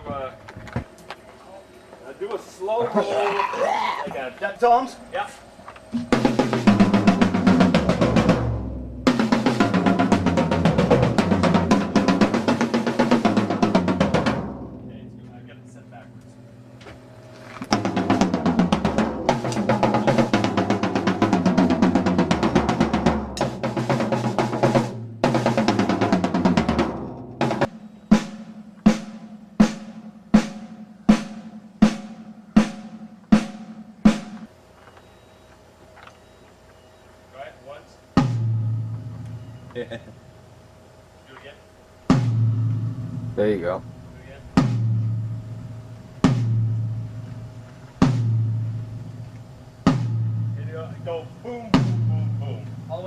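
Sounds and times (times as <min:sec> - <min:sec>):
drum rolls on toms: 0:05.9 - 0:15.4, 0:17.7 - 0:34.5, 0:38.2 - 0:40.2, 0:42.0 - 0:53.0
low drum ringing: 0:38.2 - 0:39.8, 0:42.0 - 0:53.0.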